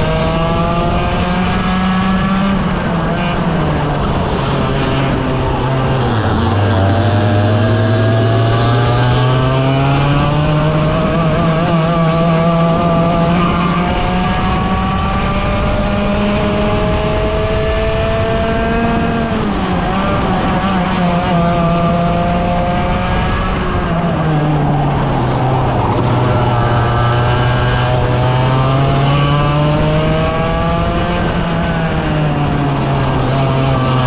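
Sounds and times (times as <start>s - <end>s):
kart engine accelerating: 0.0s - 34.0s.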